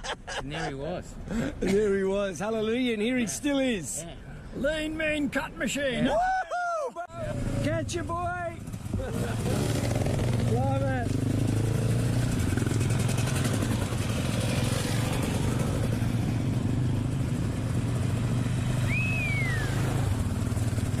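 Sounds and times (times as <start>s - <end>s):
dirt bike engine droning: 7.2s - 21.0s
high falling whistle: 18.8s - 19.8s.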